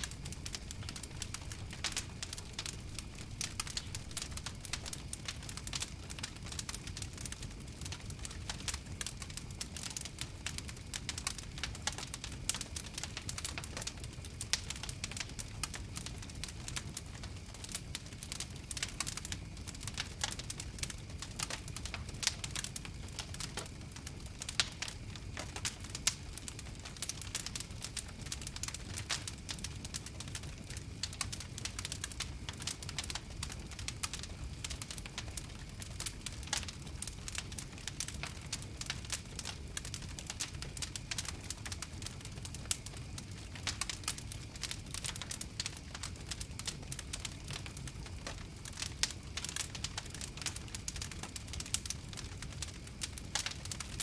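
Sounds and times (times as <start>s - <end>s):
low steady rumble: 0.0s - 5.6s
fire crackling: 0.0s - 54.0s.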